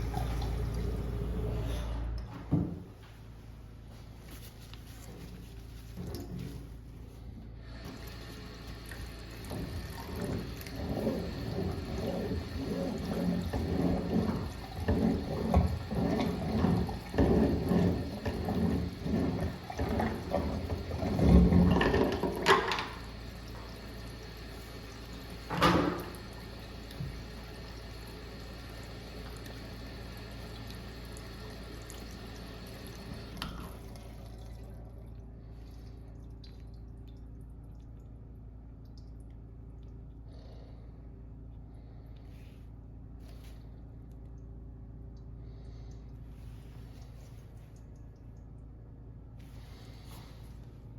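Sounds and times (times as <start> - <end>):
water gurgling and splashing: 8.0 - 24.6
steady low hum: 22.9 - 50.9.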